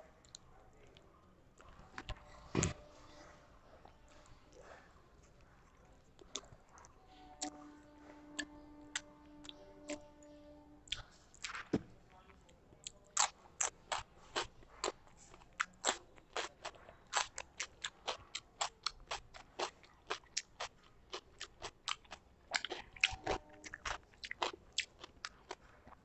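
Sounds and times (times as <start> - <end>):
chewing with wet lip smacks: 12.8 - 26.0.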